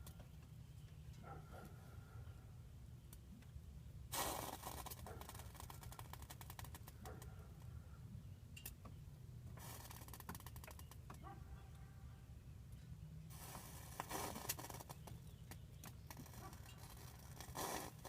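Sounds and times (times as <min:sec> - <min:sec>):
hissing with rapid crackling ticks: 0:04.2 - 0:07.3, 0:09.6 - 0:11.0, 0:13.4 - 0:18.0.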